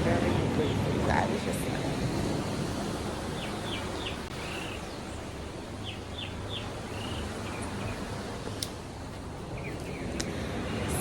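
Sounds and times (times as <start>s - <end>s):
wind: 0.0s - 11.0s
bird chirping: 3.3s - 8.2s.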